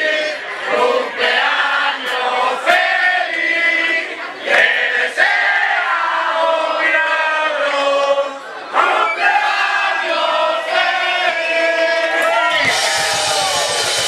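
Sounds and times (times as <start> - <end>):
rock band playing: 12.6 - 14.0
sharp drum hits: 12.6 - 14.0.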